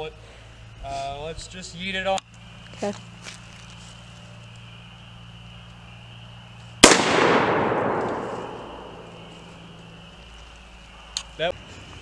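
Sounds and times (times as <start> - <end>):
rifle shot with rolling echo: 6.8 - 9.7.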